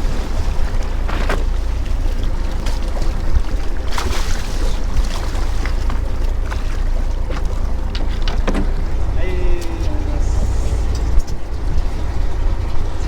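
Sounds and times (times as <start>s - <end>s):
boat engine low rumble: 0.0s - 13.0s
water splashing against hull: 0.0s - 13.0s
wind on microphone: 7.6s - 13.0s.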